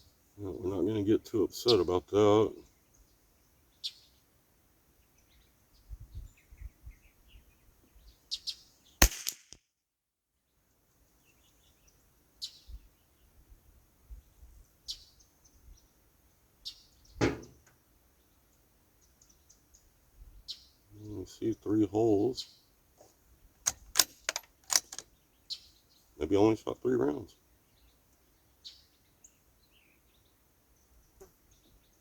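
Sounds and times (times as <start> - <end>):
sharp crack: 9.0 - 9.6, 23.7 - 25.0
dull thump: 17.2 - 17.6.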